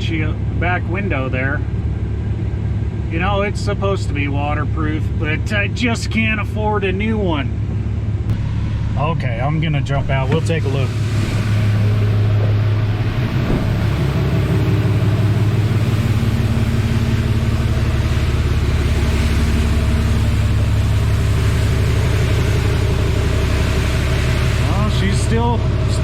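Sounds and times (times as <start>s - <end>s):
car wash machine drone: 0.0s - 26.0s
spraying water hiss: 10.1s - 25.4s.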